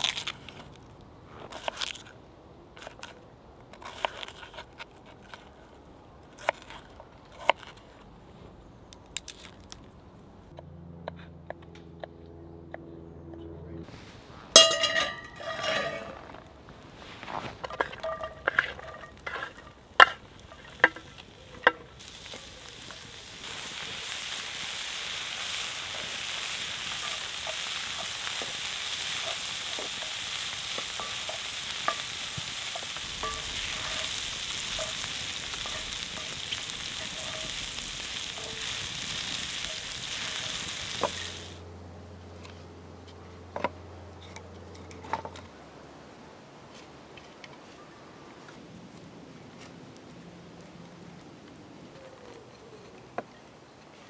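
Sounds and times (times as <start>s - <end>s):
onions sizzling in hot oil: 14.6s - 16.2s, 17.7s - 41.6s.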